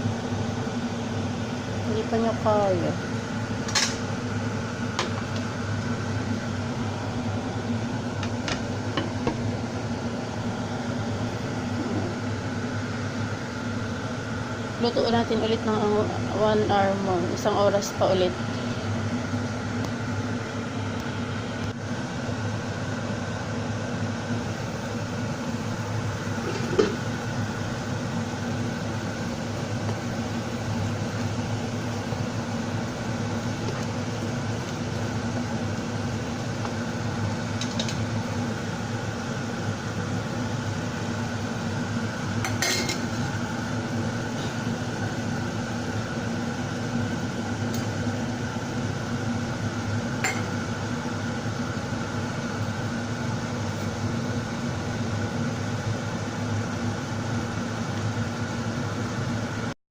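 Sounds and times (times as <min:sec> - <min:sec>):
kitchen hum: 0:00.0 - 0:59.7
kitchenware clinking: 0:42.5 - 0:43.0.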